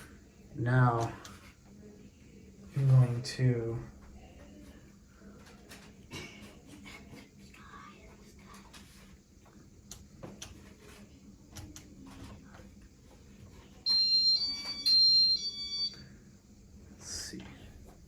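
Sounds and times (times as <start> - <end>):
fan control electronic beeps: 13.8 - 16.1.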